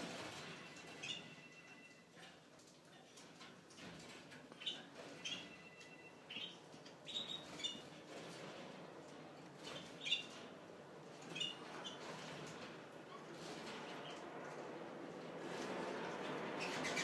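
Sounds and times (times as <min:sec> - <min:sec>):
faint room hum: 0:00.0 - 0:17.0
small birds chirping: 0:04.6 - 0:08.0, 0:09.6 - 0:10.5, 0:11.2 - 0:12.3.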